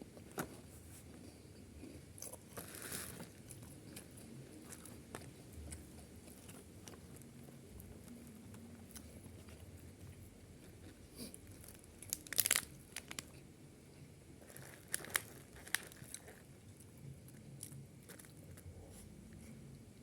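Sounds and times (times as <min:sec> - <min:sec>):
crunchy bites and chewing: 0:10.6 - 0:13.4, 0:14.4 - 0:18.7.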